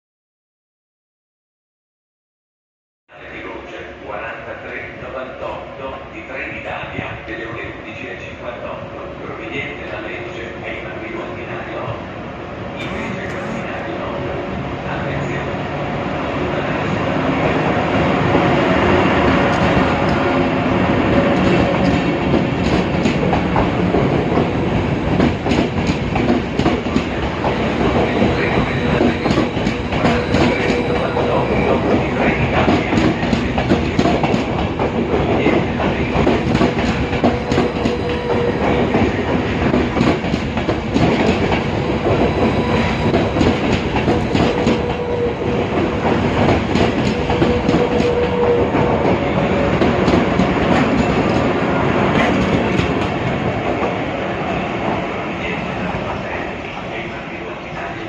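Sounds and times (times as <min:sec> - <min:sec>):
train wheels rumbling on rails: 0:12.8 - 0:58.0.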